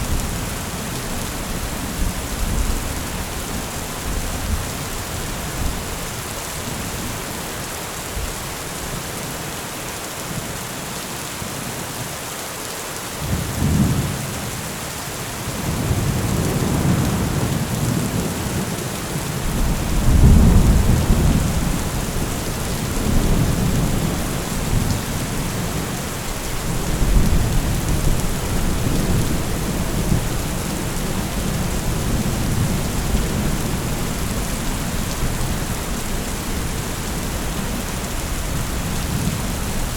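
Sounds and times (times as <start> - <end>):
steady rain: 0.0 - 39.9
rolling thunder: 19.4 - 36.0.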